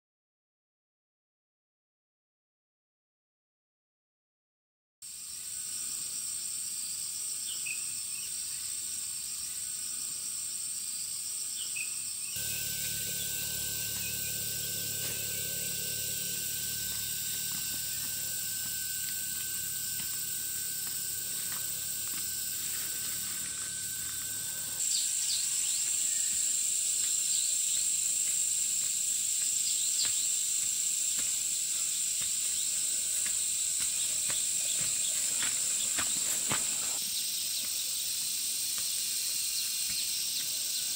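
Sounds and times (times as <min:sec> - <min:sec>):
insects trilling: 0:05.1 - 0:40.9
low hum: 0:12.4 - 0:25.9
thin steady whine: 0:12.4 - 0:29.3, 0:31.7 - 0:37.0.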